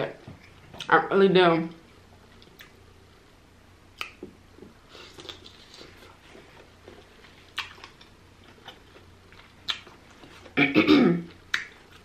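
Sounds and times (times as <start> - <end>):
person chewing soft food: 2.3 - 2.8, 4.0 - 10.6, 11.3 - 12.0.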